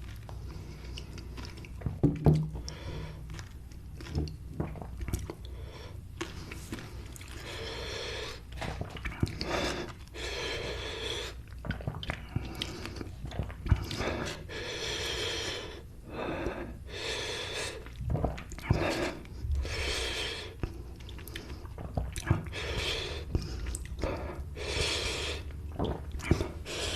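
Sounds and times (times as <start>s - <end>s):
chewing: 0.0s - 2.0s, 2.6s - 5.5s, 6.2s - 10.1s
person breathing hard: 2.6s - 3.3s, 5.5s - 8.5s, 9.3s - 11.4s, 12.4s - 18.0s, 18.7s - 21.7s, 22.4s - 25.6s, 26.2s - 26.9s.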